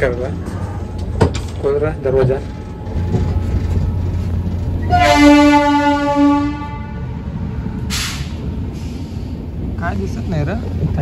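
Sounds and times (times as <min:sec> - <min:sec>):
train rumbling: 0:00.0 - 0:11.0
train horn blast: 0:04.8 - 0:07.9.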